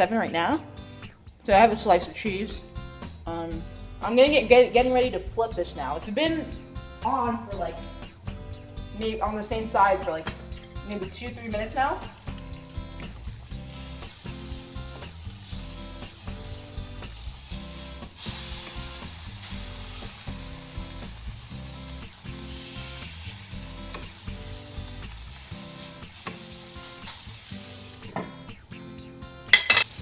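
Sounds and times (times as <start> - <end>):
background music with beat: 0.6 - 30.0
meat sizzling in a pan: 11.2 - 30.0.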